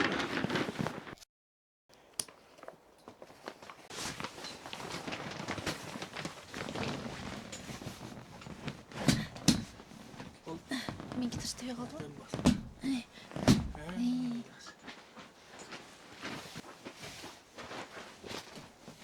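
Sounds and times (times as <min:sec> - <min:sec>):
footsteps: 0:06.8 - 0:19.0.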